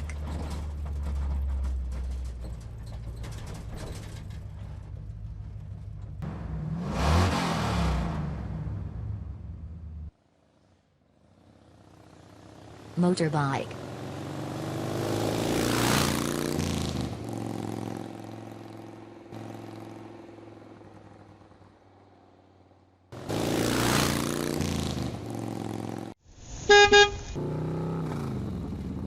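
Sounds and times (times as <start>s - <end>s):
motorbike engine passing by: 10.4s - 26.2s, 26.9s - 29.0s
horn beep: 26.6s - 27.4s.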